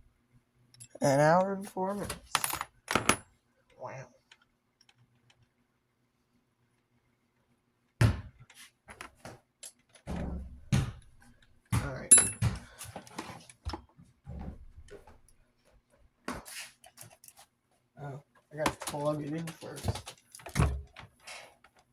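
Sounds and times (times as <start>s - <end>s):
handling knocks and clunks: 10.1s - 15.3s, 18.6s - 21.2s.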